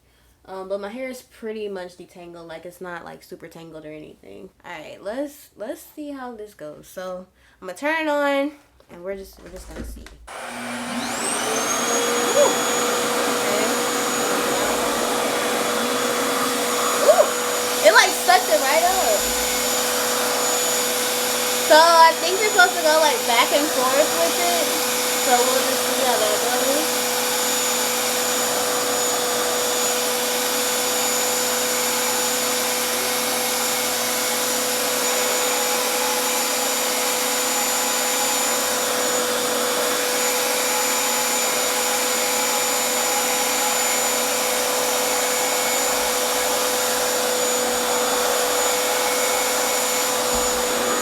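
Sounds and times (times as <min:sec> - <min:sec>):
hair dryer running: 0:10.3 - 0:51.0.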